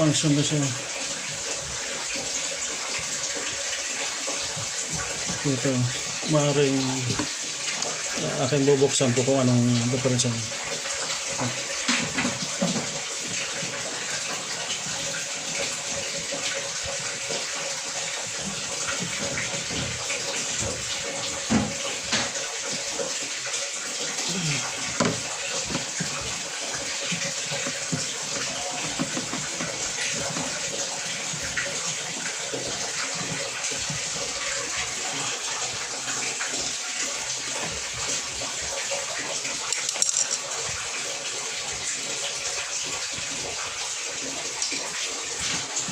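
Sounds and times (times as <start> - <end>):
water running: 0.0 - 45.9
handling knocks and clicks: 27.2 - 30.6.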